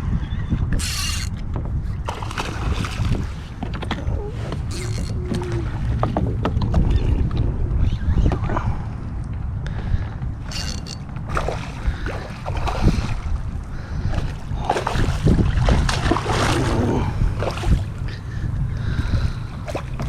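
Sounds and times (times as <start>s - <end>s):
wind rumbling on microphone: 0.0s - 20.0s
water splashing against hull: 0.6s - 20.0s.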